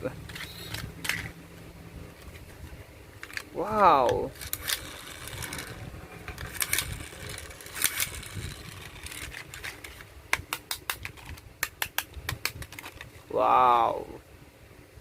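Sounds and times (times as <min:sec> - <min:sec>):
toy rustling: 0:00.2 - 0:10.1
plastic toy clicks: 0:03.2 - 0:13.0.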